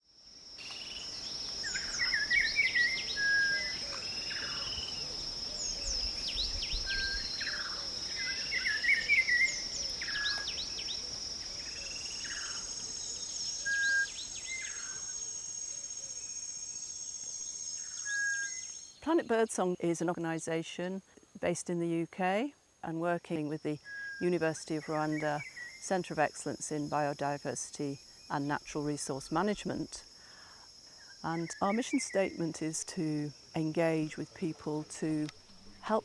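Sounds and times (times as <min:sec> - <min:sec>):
insect trilling: 0:00.6 - 0:20.3
birds chirping and whistling: 0:13.6 - 0:15.1, 0:17.8 - 0:19.0.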